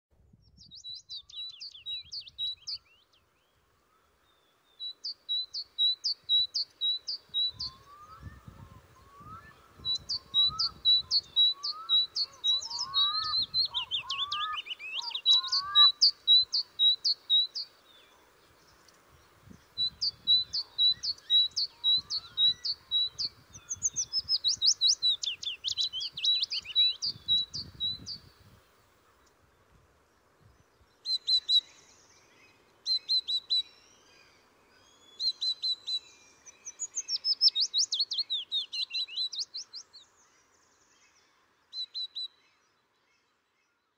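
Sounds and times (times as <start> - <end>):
wind rumble on microphone: 0.2 - 1.1, 7.3 - 14.5, 19.0 - 28.8.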